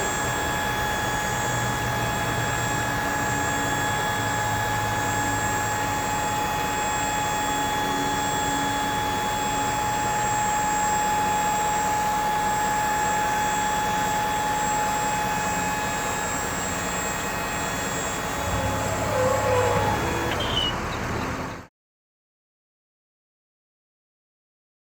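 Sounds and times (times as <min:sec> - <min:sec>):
high-pitched whine: 0:00.0 - 0:21.6
dump truck engine hum: 0:11.5 - 0:21.7.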